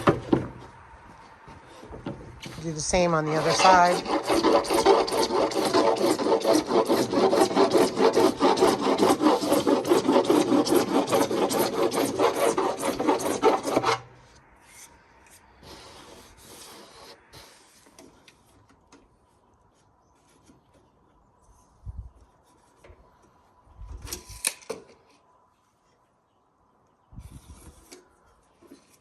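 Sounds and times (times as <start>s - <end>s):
file rasping plastic pipe: 2.4s - 14.1s.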